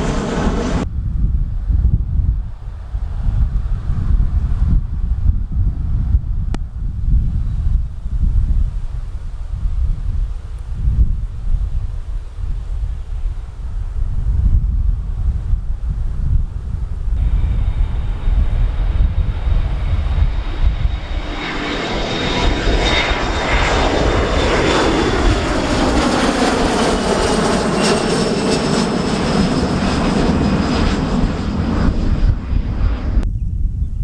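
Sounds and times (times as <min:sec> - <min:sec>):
airliner engines roaring: 0:00.0 - 0:00.9, 0:15.0 - 0:33.3
wind rumbling on microphone: 0:00.0 - 0:34.0.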